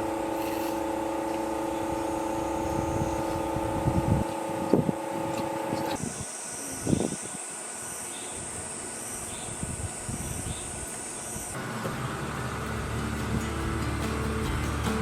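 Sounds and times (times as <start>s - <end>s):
machine hum: 0.0s - 8.1s, 11.1s - 15.0s.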